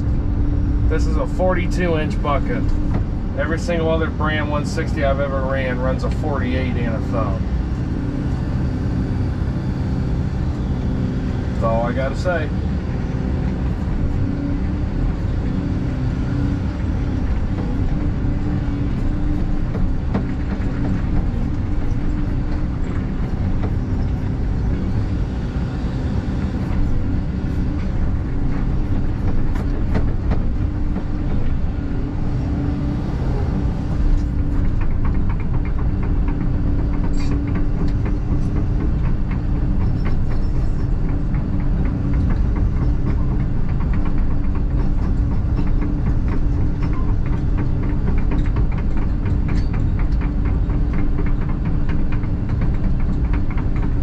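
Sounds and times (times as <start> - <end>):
excavator diesel engine running: 0.0 - 54.0
rapid clicking and clanking: 16.6 - 25.3, 26.6 - 32.2, 33.7 - 54.0.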